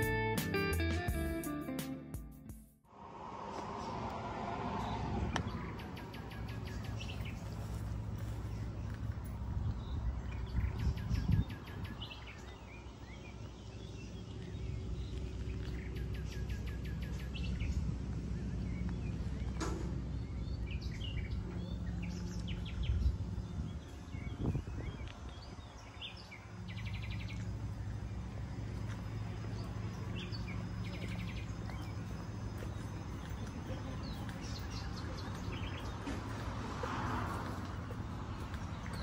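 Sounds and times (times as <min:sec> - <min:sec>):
low outdoor rumble: 0:02.9 - 0:39.0
birds chirping and calling: 0:05.3 - 0:27.5, 0:29.2 - 0:36.4.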